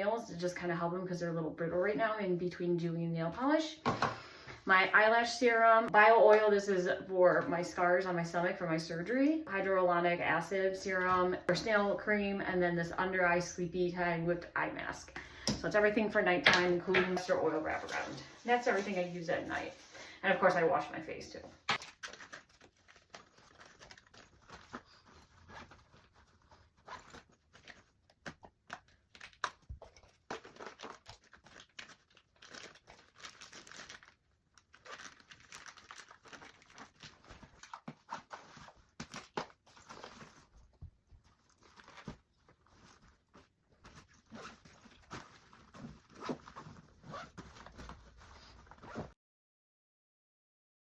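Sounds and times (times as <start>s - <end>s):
bag rustling and crinkling: 17.6s - 20.2s, 21.8s - 27.9s, 30.0s - 49.1s.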